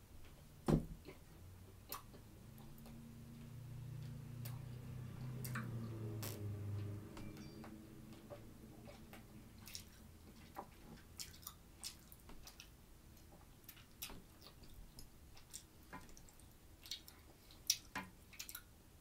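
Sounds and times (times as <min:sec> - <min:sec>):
faint chewing: 0:01.0 - 0:18.7
wet mouth clicks and smacks: 0:13.6 - 0:18.7.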